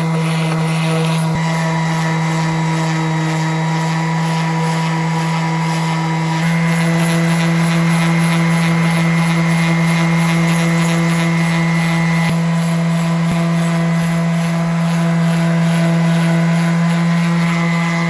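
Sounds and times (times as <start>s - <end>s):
palm sander motor hum: 0.0s - 18.0s.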